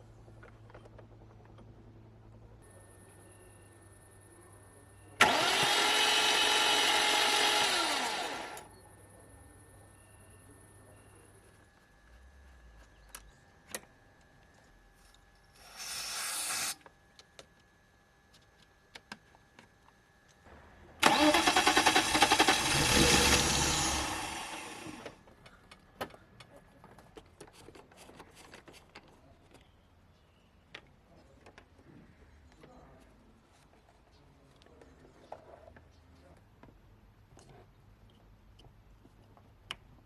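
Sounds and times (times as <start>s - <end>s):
car engine cranking: 5.2s - 8.6s, 21.0s - 25.1s.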